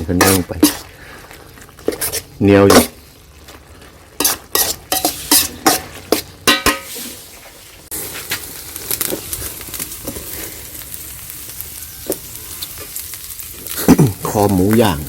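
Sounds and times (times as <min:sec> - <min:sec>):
food sizzling in hot pan: 0:00.0 - 0:15.0
utensil clinking against pot: 0:04.2 - 0:07.0.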